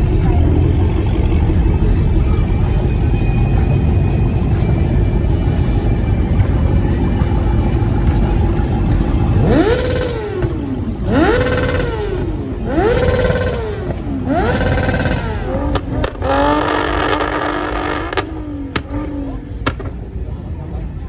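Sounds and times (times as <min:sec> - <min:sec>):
car engine revving: 0:00.0 - 0:20.8.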